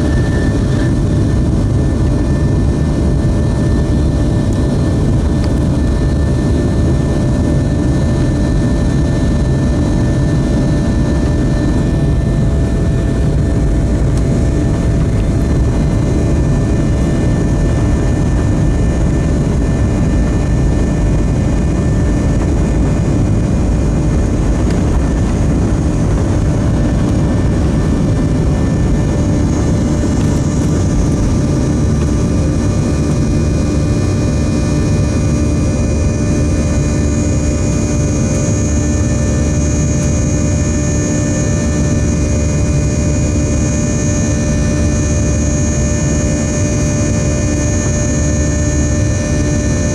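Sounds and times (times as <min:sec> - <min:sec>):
jet engines roaring: 0:00.0 - 0:49.9
whining fan tones: 0:00.0 - 0:49.9.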